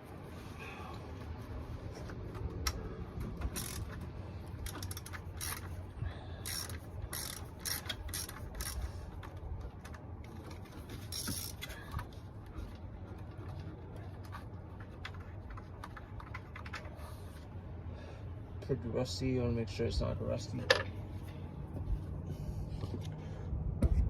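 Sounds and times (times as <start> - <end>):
socket ratchet clicking: 2.7 - 5.8, 6.4 - 8.9, 11.0 - 11.7.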